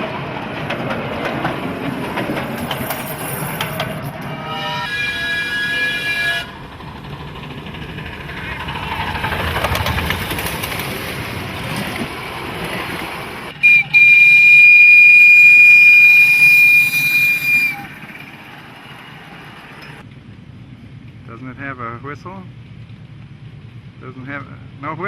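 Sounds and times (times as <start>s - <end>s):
rushing noise: 0.0s - 14.0s
high single-note whistle: 13.6s - 18.0s.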